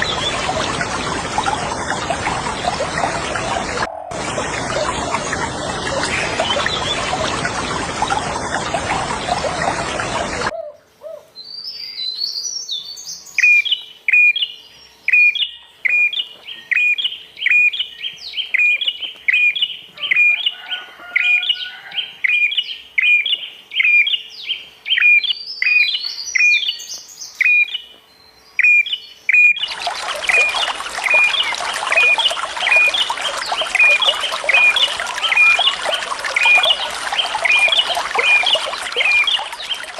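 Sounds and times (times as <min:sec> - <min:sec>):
running water rushing: 0:00.0 - 0:10.5, 0:29.6 - 0:39.9.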